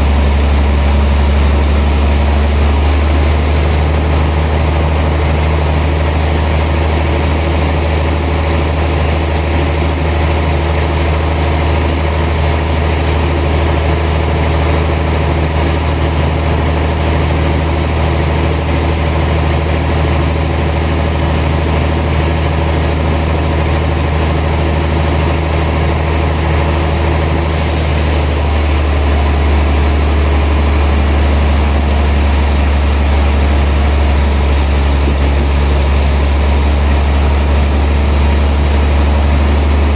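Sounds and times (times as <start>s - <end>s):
sawmill machinery hum: 0.0s - 39.9s
high hiss: 27.4s - 39.9s.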